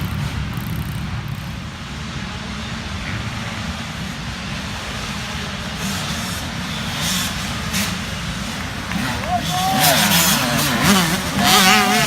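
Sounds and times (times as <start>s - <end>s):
dirt bike engines droning: 3.4s - 12.0s.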